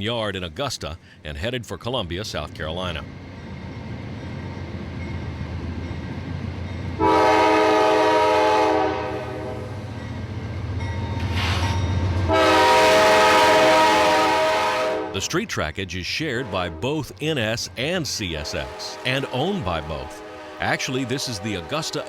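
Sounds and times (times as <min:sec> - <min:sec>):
locomotive engine rumble: 0:00.4 - 0:22.0
locomotive air horn blasts: 0:07.0 - 0:09.7, 0:12.3 - 0:15.2, 0:18.4 - 0:22.0.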